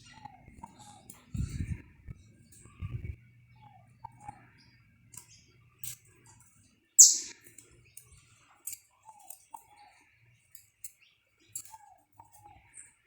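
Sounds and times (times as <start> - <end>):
finch chirps and clicks: 7.0 - 8.2.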